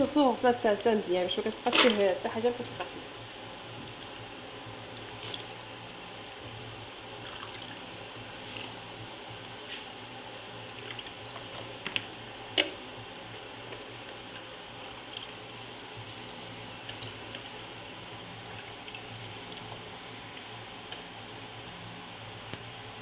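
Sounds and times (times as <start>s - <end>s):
hands washing greens in water: 1.4s - 2.9s, 5.0s - 5.6s.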